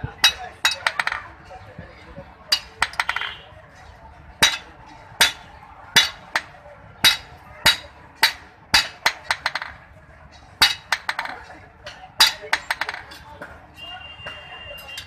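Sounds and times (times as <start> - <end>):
hammer striking hot iron: 4.4 - 9.8, 10.6 - 11.4.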